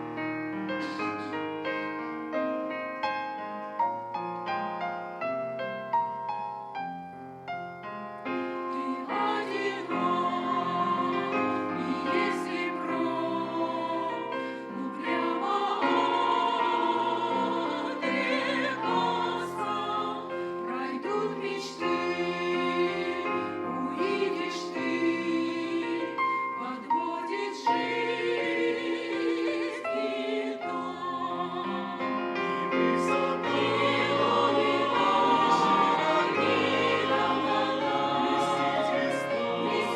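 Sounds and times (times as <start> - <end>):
church choir singing a hymn: 0.0 - 3.5, 8.2 - 39.9
piano accompaniment: 0.0 - 39.9.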